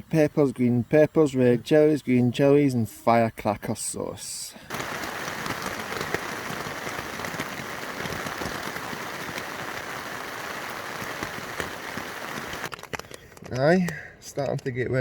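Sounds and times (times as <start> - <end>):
rain falling steadily: 4.7 - 12.7
raindrop taps: 4.7 - 13.6.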